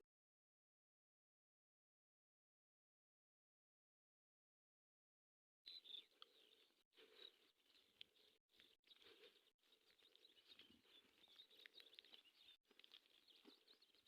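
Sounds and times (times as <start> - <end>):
faint high chirps: 5.7 - 14.0.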